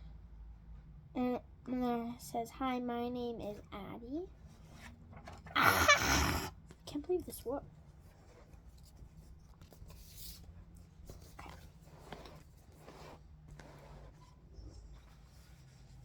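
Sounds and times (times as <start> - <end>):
paper scratching and rustling: 8.1 - 16.0.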